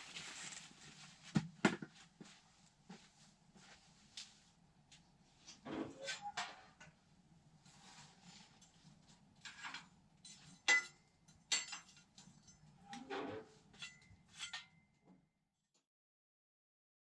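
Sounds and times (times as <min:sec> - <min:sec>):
light metal clinks and knocks: 0:08.4 - 0:12.8.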